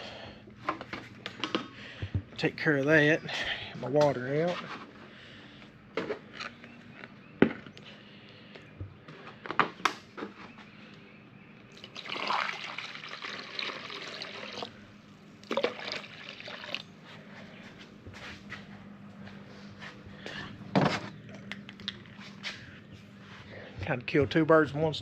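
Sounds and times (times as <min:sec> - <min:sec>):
water pouring: 0:11.7 - 0:14.8, 0:15.4 - 0:16.8.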